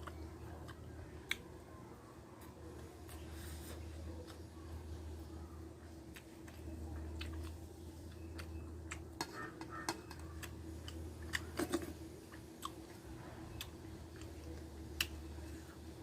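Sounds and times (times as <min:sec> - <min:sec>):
person chewing food: 0:00.0 - 0:01.6, 0:05.8 - 0:16.0
steady low hum: 0:00.0 - 0:16.0.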